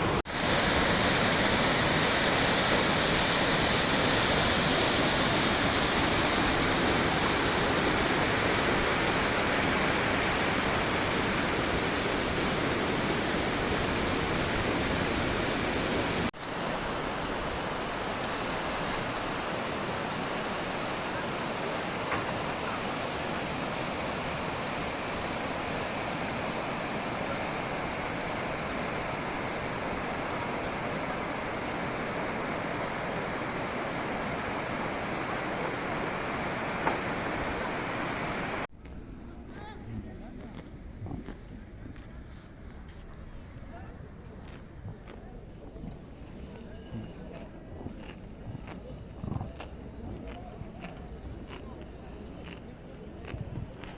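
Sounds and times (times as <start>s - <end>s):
rushing water: 0.0s - 38.7s.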